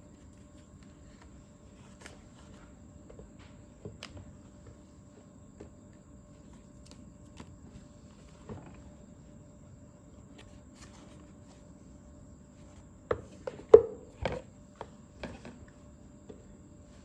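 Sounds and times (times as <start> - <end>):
objects tapping and knocking: 13.0 - 15.7.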